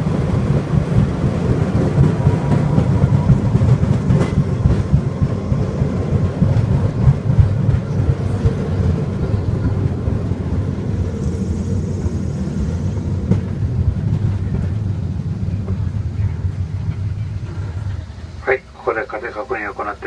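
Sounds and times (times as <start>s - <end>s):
rail cart rumbling on track: 0.0s - 20.0s
knocks from the track: 3.3s - 5.1s.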